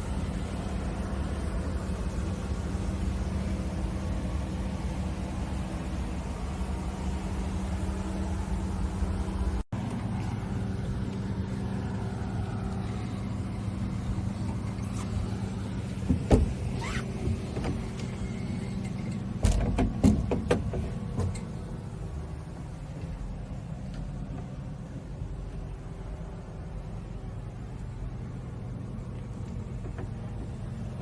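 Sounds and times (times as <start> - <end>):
boat engine idling: 0.0 - 31.0.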